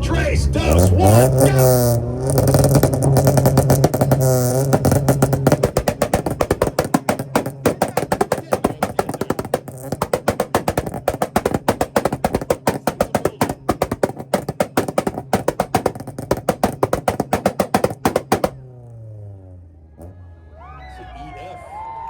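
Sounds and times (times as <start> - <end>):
car engine popping and banging: 0.0 - 20.3.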